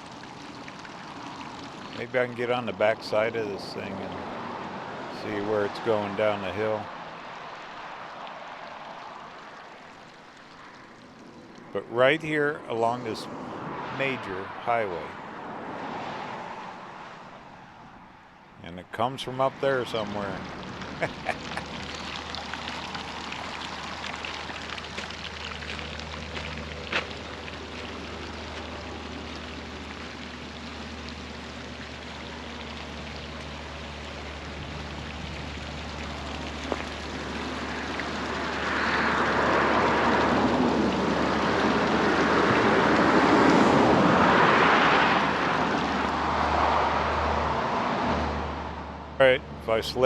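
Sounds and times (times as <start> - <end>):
vehicles passing: 0.0 - 50.0
hissing running water: 19.5 - 46.8.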